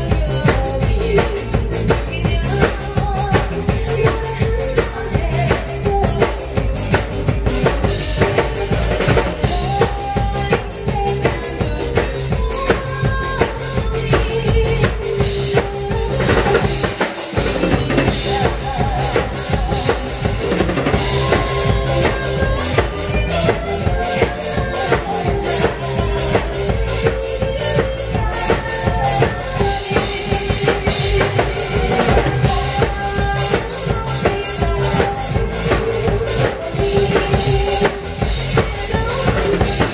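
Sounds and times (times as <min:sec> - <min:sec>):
backing music: 0:00.0 - 0:39.9
drum kit beat: 0:00.0 - 0:39.9.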